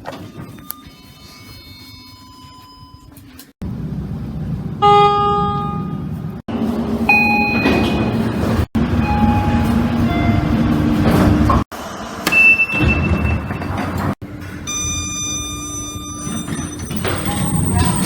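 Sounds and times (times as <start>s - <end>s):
elevator chimes: 7.1s - 8.3s, 8.9s - 10.6s, 14.6s - 18.0s.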